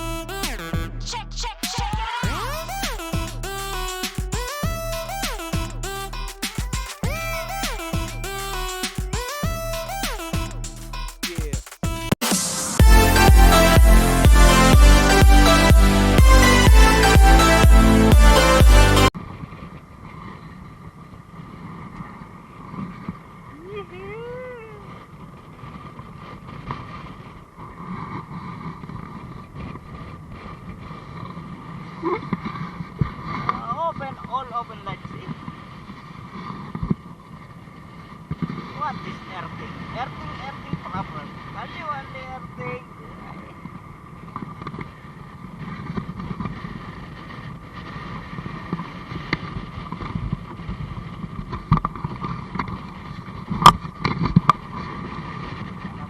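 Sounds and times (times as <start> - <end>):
short vocal sound: 0.0 - 19.0.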